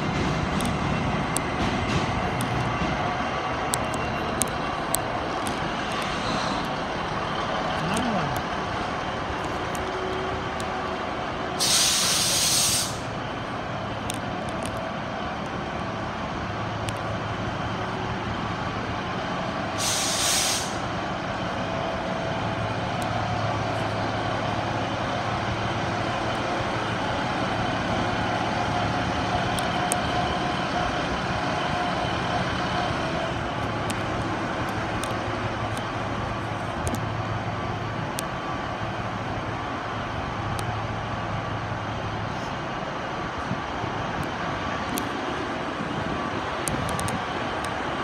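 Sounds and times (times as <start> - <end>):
diesel train engine drone: 0.0 - 48.0
air brake hiss: 6.1 - 6.6, 11.6 - 13.1, 19.8 - 20.9.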